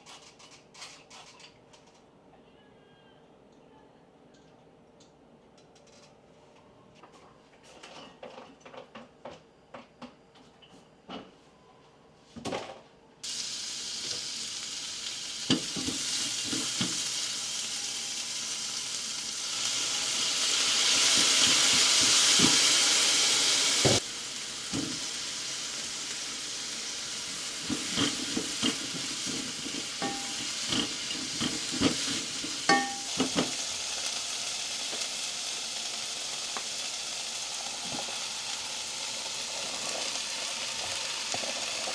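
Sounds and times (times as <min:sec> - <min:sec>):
food sizzling in frying pan: 0:13.2 - 0:41.9
utensil scraping pan: 0:27.6 - 0:33.6.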